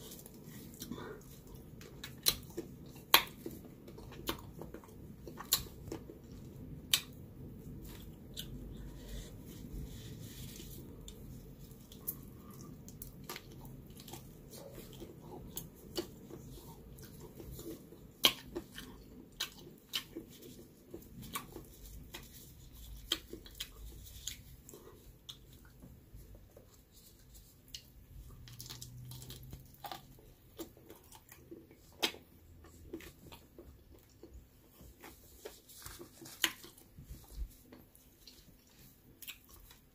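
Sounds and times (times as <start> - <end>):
wet chewing and crunching: 0.0 - 39.9.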